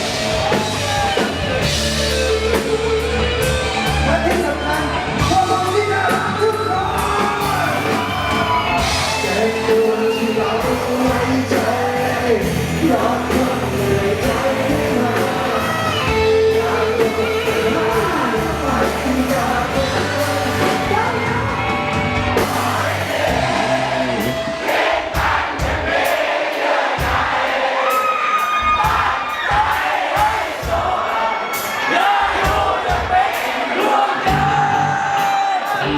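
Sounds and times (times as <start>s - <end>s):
overdriven electric guitar lead: 0.0s - 24.6s
rock backing track: 0.0s - 26.3s.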